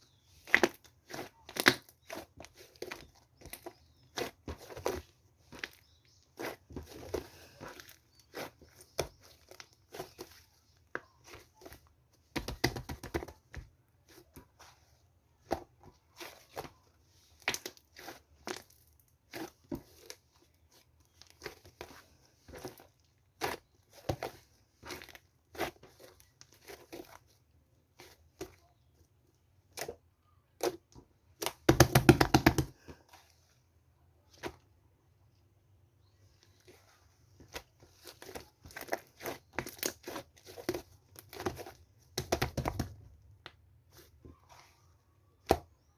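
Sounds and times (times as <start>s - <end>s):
crinkly material rustling: 36.0s - 42.9s.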